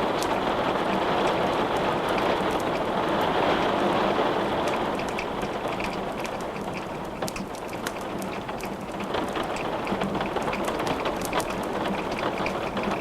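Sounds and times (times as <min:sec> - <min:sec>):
wood crackling in fireplace: 0:04.6 - 0:13.0.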